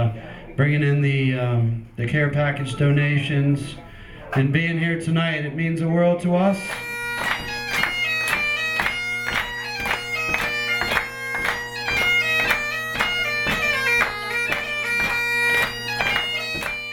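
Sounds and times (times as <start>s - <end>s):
bagpipes playing: 6.5s - 16.9s.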